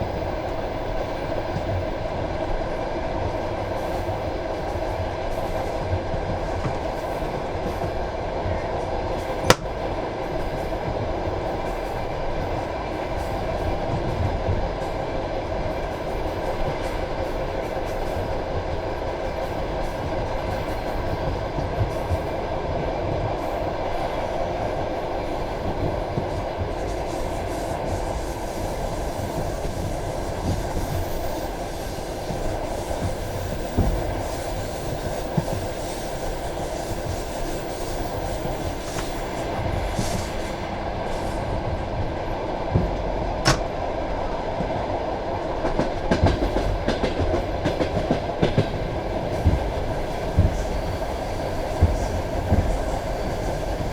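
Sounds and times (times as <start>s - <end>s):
train wheels rumbling on rails: 0.0s - 53.9s
rail joint clacks: 9.2s - 11.0s, 36.8s - 43.9s.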